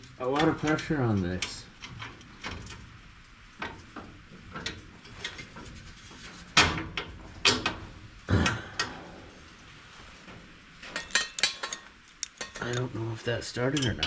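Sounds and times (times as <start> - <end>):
metallic clanks of tools on steel: 10.8 - 13.0, 13.6 - 14.0
tools scraping against steel: 10.8 - 14.0.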